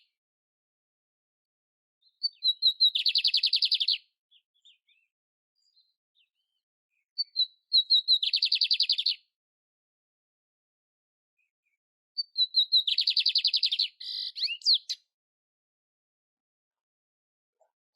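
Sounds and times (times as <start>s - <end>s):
bird singing with rattling trill: 2.0s - 9.2s, 12.2s - 15.1s.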